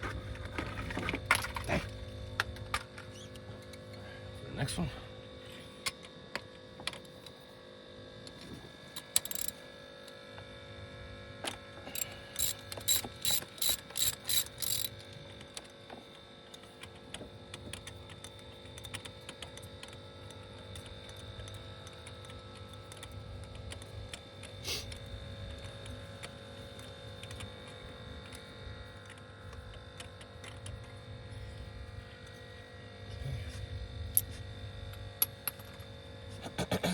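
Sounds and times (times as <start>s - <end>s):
socket ratchet clicking: 9.0s - 9.6s, 11.9s - 15.0s.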